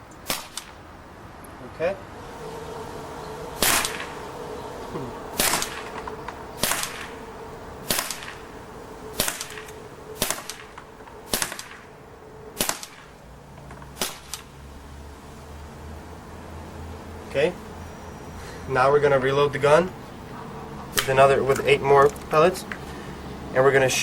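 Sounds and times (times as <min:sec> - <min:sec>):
air pistol firing sharp cracks: 0:00.2 - 0:00.8, 0:03.6 - 0:04.2, 0:05.3 - 0:07.2, 0:07.8 - 0:08.5, 0:09.1 - 0:11.9, 0:12.6 - 0:13.2, 0:14.0 - 0:14.5.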